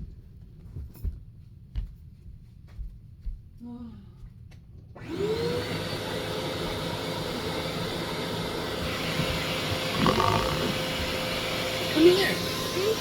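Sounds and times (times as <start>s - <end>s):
vacuum cleaner motor whine: 5.0s - 13.0s.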